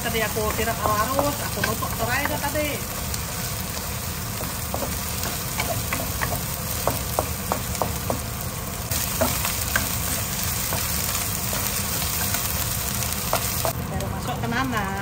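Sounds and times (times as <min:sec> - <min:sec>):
spice paste sizzling in oil: 0:00.0 - 0:15.0
wooden spatula tapping and scraping: 0:00.3 - 0:02.7, 0:04.3 - 0:13.8.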